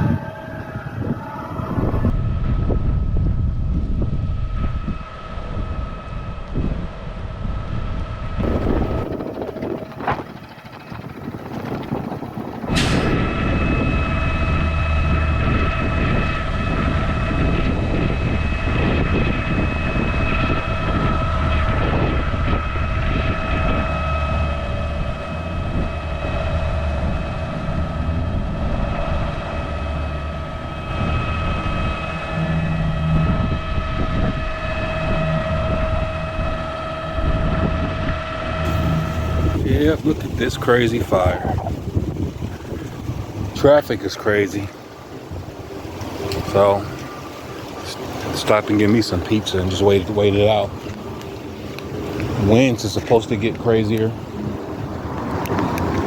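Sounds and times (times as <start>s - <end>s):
truck engine rumbling: 0.0s - 56.0s
sharp sound: 12.7s - 13.6s.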